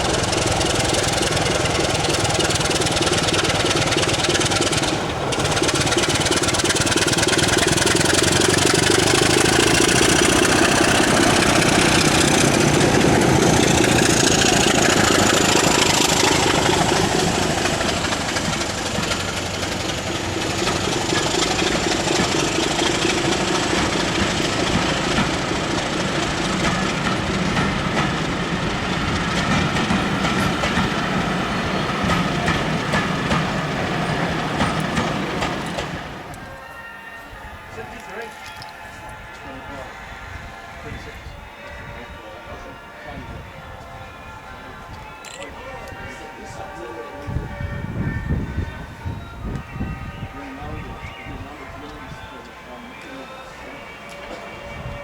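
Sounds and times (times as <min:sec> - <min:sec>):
diesel locomotive engine running: 0:00.0 - 0:55.0.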